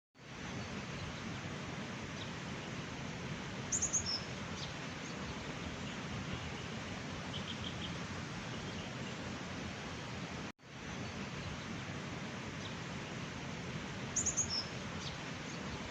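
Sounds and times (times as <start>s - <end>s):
flowing water rushing: 0.2s - 15.9s
faint bird trill: 3.7s - 4.3s, 14.2s - 15.2s
songbird chirping: 3.7s - 9.2s, 14.2s - 15.9s.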